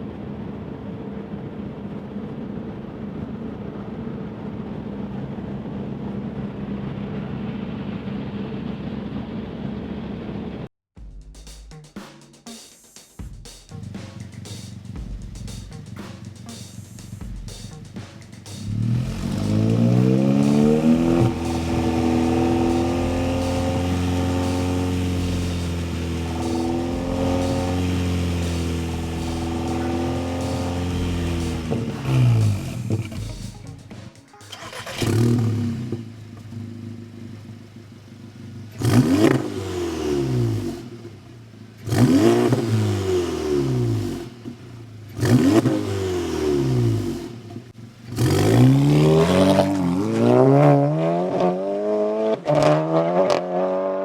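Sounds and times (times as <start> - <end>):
car exhaust drone: 14.2 - 54.0.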